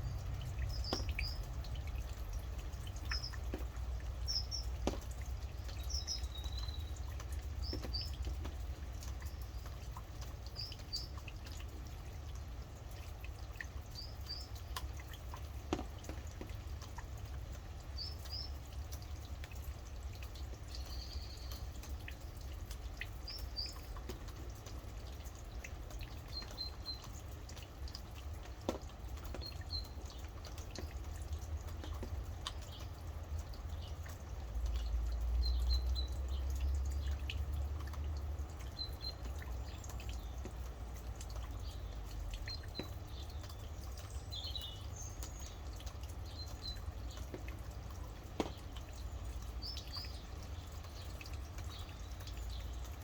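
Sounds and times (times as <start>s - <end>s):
bird chirping: 0.0s - 1.6s, 2.8s - 3.6s, 4.2s - 8.3s
rain dripping: 0.0s - 53.0s.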